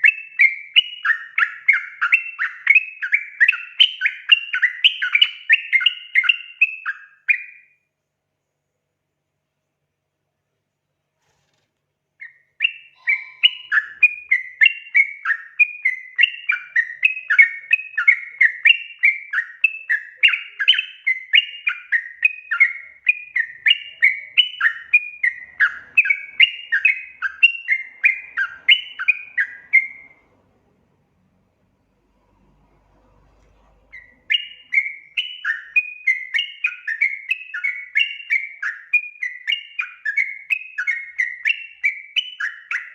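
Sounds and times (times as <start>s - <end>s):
bird chattering calls: 12.3s - 30.2s.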